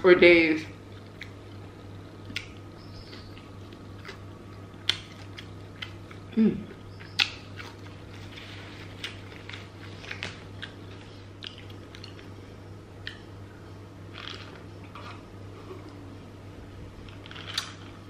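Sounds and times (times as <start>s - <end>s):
chewing crispy fried chicken: 0.8s - 12.4s, 14.1s - 16.0s, 17.0s - 18.0s.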